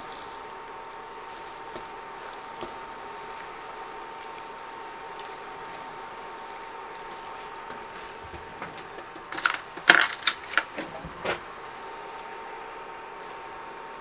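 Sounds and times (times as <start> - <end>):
wooden spoon scraping: 0.0 - 9.8
rice sizzling in pot: 0.0 - 9.9, 11.4 - 14.0
faint steady whine: 0.0 - 14.0.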